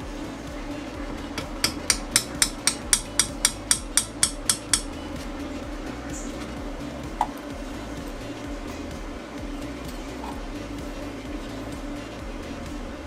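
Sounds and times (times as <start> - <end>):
sharp metallic clicks: 1.4 - 4.9.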